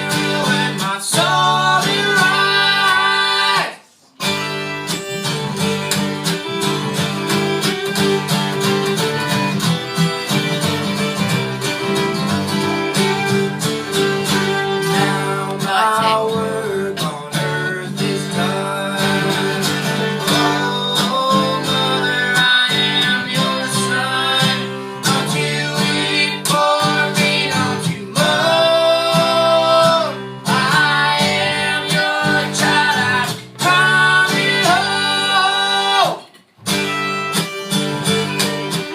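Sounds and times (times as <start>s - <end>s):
strummed acoustic guitar: 0.0s - 38.9s
bending lead melody: 4.3s - 17.0s
bass line: 12.7s - 20.8s.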